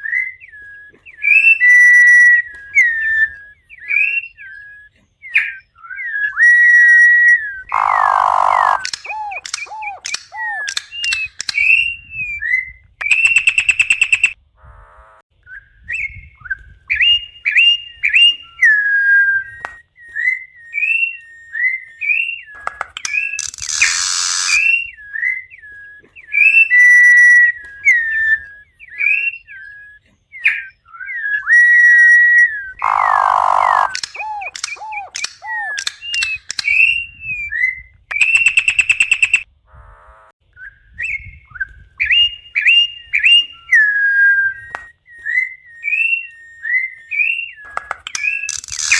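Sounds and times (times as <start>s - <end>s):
bird whistling gliding notes: 0.0s - 14.4s, 15.4s - 39.5s, 40.5s - 48.9s
harsh raspy bird calls: 6.4s - 11.8s, 22.0s - 36.8s, 45.9s - 48.9s.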